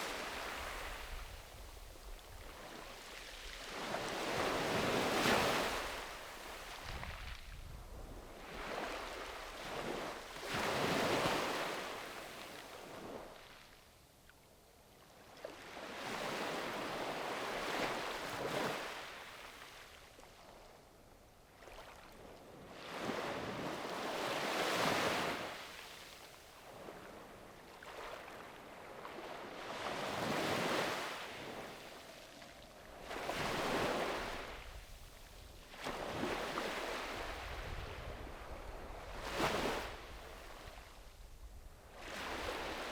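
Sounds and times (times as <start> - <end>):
sea waves breaking on beach: 27.9 - 35.0, 35.7 - 40.9, 42.0 - 42.9.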